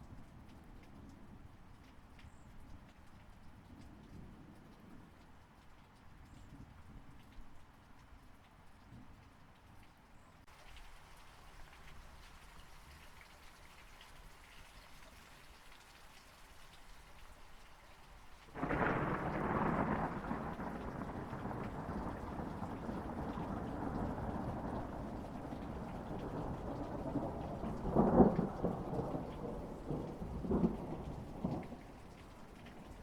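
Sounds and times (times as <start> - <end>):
steady rain: 0.0 - 33.0
thunderclap rumbling: 18.6 - 33.0.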